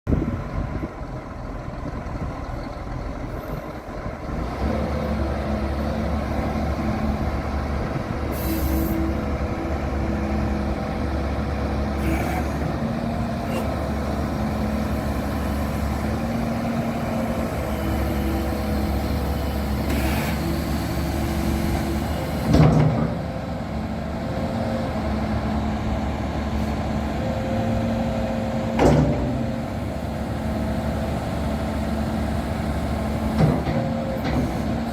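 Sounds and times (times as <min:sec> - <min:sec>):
excavator diesel engine running: 0:00.1 - 0:34.9
hydraulic whining: 0:12.0 - 0:16.4, 0:17.0 - 0:22.9
loud clunks: 0:28.8 - 0:29.4.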